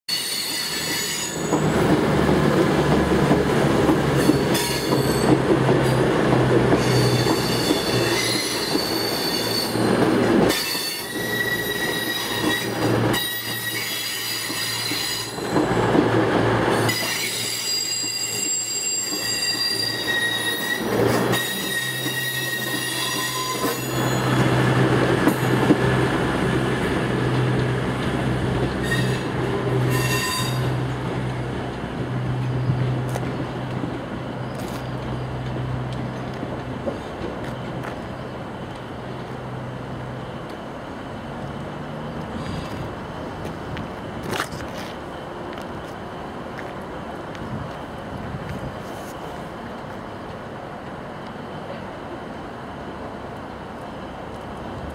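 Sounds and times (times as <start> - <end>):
wheel flange squeal: 0.1 - 1.7, 6.8 - 9.9, 10.5 - 15.8, 16.7 - 24.6, 28.8 - 30.8
diesel train engines droning: 0.1 - 54.9.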